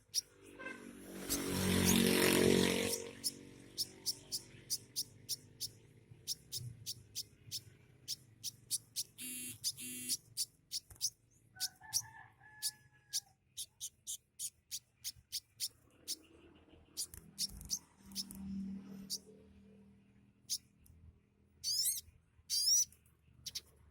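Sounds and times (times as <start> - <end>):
buzzy bird notes: 0.0 - 11.1, 21.6 - 23.7
songbird high chirps: 3.2 - 16.3, 16.9 - 18.4, 21.6 - 23.7.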